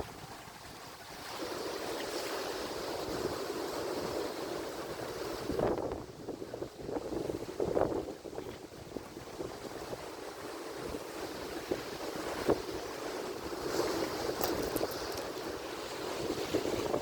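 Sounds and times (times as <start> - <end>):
ocean waves rushing: 10.2 - 17.0.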